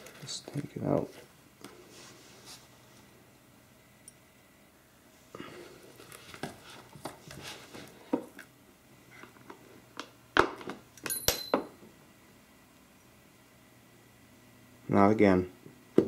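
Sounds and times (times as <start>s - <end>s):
clicks and rustles of packaging: 0.0s - 1.1s.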